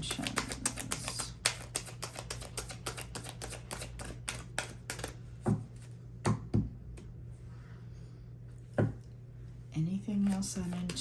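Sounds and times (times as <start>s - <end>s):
cards being shuffled: 0.0s - 5.2s.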